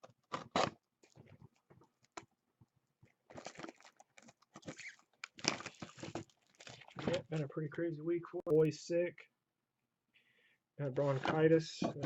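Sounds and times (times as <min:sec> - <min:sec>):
plastic wrap crinkling and tearing: 0:03.2 - 0:07.2.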